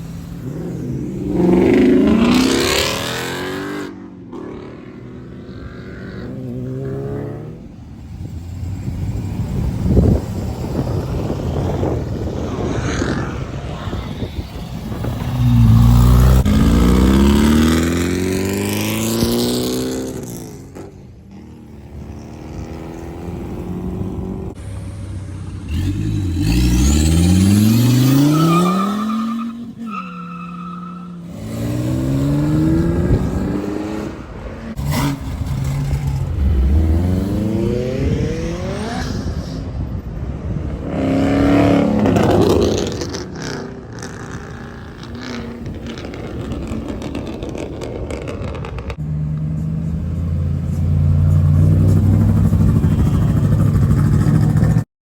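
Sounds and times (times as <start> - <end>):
sports car exhausts accelerating: 41.5 - 54.8.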